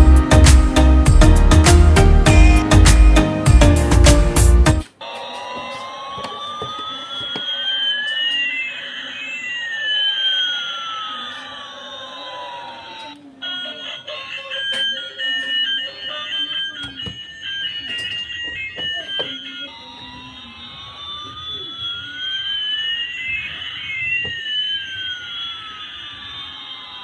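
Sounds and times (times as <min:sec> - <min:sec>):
sliding siren-like tones: 0:04.8 - 0:27.0
toy beeping melody: 0:04.8 - 0:27.0.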